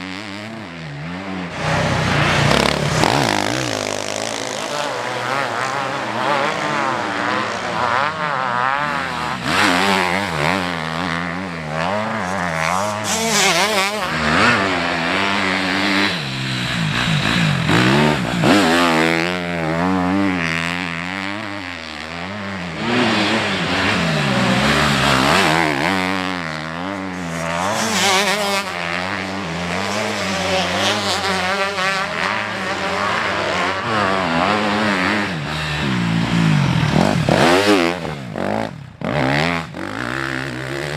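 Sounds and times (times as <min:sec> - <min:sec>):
motorcycles revving while racing: 0:00.0 - 0:40.9.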